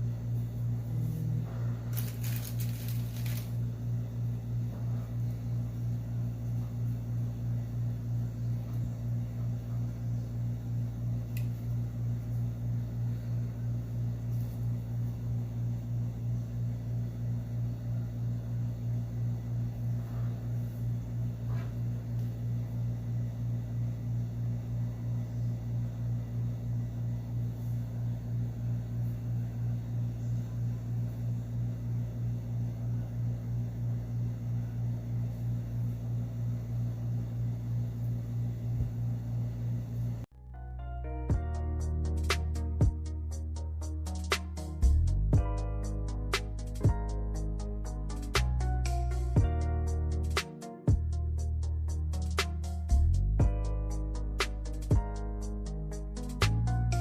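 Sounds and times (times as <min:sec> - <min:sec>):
pulsing motor hum: 0:00.0 - 0:40.4.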